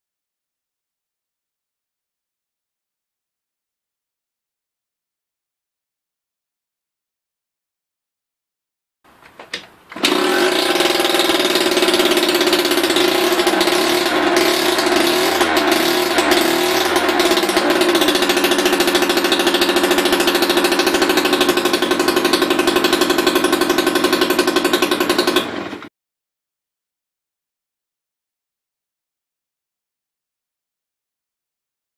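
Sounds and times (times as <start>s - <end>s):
moped engine pulsing: 10.0s - 25.9s.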